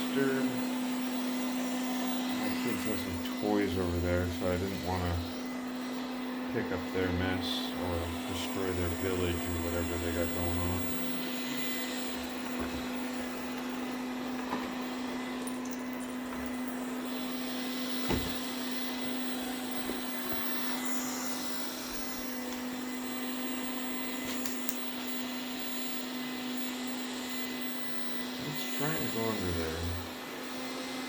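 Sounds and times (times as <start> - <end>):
robot vacuum cleaner humming: 0.0 - 31.0
knock: 18.1 - 18.4.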